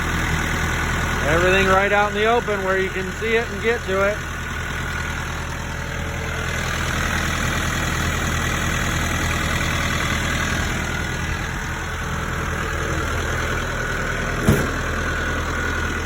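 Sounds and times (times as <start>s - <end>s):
tractor engine idling: 0.0s - 16.0s
short knock: 14.4s - 14.8s.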